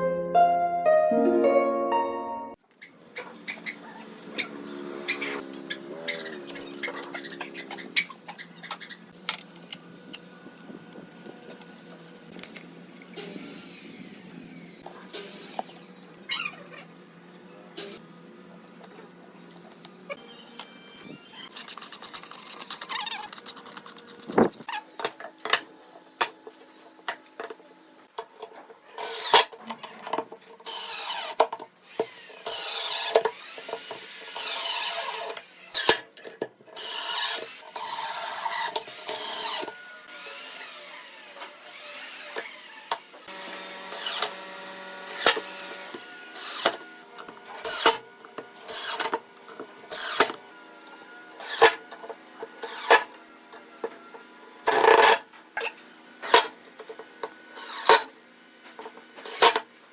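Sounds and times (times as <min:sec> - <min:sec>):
power drill whining: 0:30.6 - 0:36.0, 0:36.8 - 0:46.9, 0:51.3 - 0:51.8, 0:57.6 - 0:58.0.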